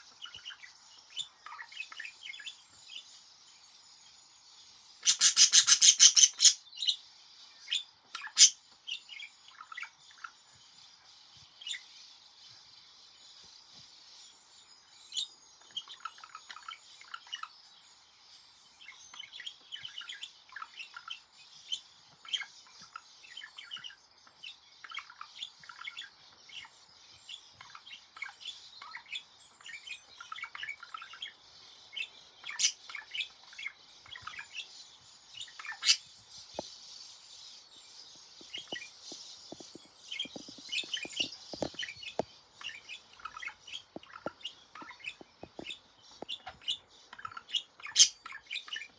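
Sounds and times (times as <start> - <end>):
budgerigar warbling: 5.0 - 6.6, 8.2 - 8.6, 32.6 - 32.8, 35.7 - 36.0, 47.9 - 48.2.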